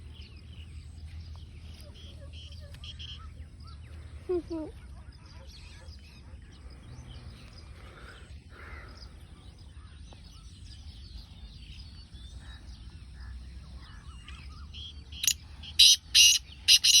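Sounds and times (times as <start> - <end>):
small birds chirping: 0.0 - 17.0
francolin calling harsh notes: 15.2 - 17.0.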